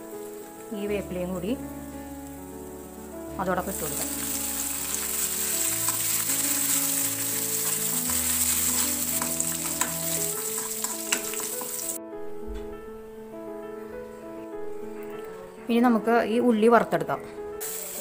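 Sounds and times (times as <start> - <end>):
nuts and leaves sizzling in oil: 0.0 - 12.0, 17.6 - 18.0
ladle clicking against pan: 9.2 - 11.8.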